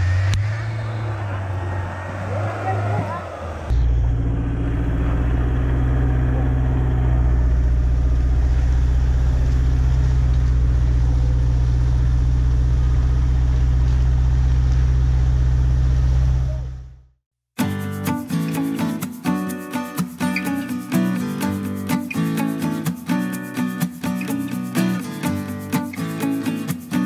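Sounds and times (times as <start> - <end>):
vehicle engine running at low revs: 0.0 - 17.1.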